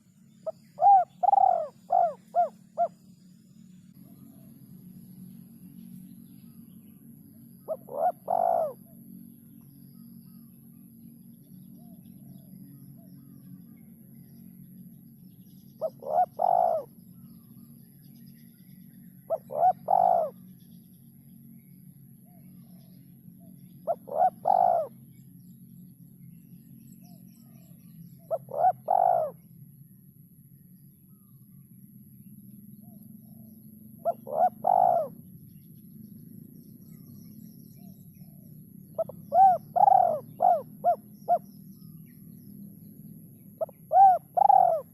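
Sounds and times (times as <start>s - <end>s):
dove cooing: 0.0s - 3.0s, 7.7s - 9.0s, 15.8s - 17.0s, 19.3s - 20.4s, 23.8s - 25.0s, 28.3s - 29.4s, 34.0s - 35.2s, 39.0s - 41.5s, 43.6s - 44.9s
steady low hum: 0.0s - 44.9s.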